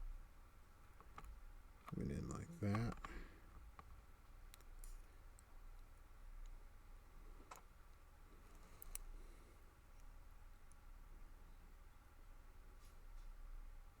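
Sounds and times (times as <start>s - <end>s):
faint metal lock parts clicking: 8.5s - 9.1s.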